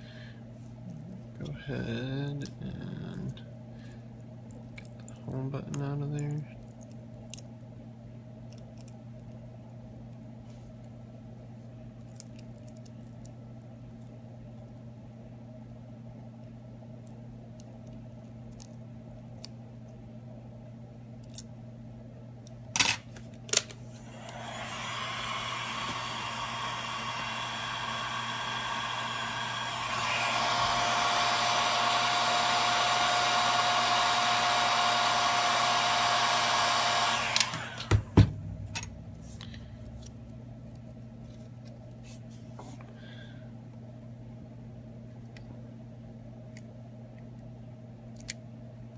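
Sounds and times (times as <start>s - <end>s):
hot-air blower running: 0.0s - 0.5s, 23.8s - 40.2s.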